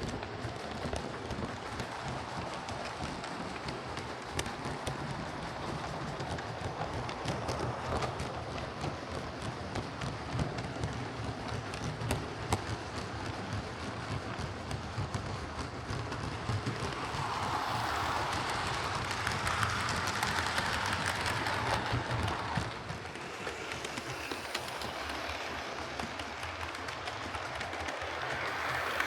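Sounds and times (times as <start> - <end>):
wheels clicking on track: 0.0 - 29.0
model train motor whirring: 16.0 - 29.0.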